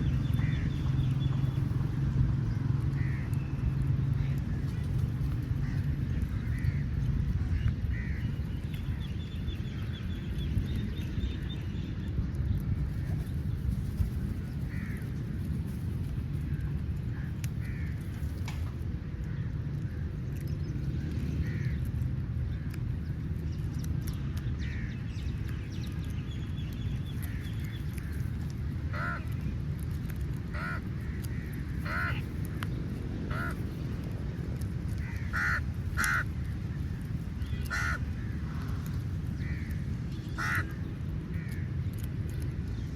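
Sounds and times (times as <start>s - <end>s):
steady low rumble: 0.0s - 42.9s
crows cawing: 3.0s - 3.3s, 14.7s - 15.1s, 17.2s - 18.0s, 28.9s - 29.3s, 30.5s - 32.3s, 33.3s - 33.6s, 35.0s - 36.7s, 37.5s - 38.8s, 39.4s - 41.7s.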